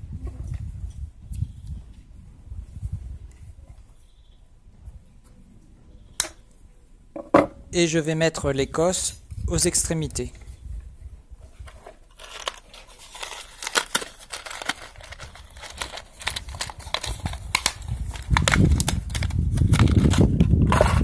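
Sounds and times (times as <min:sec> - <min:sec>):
wire and terminals crinkling: 0:11.4 - 0:21.0.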